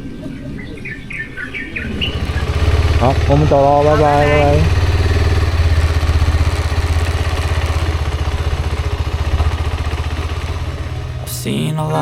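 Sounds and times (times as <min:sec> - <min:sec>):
motorcycle engine running: 0:01.8 - 0:11.3.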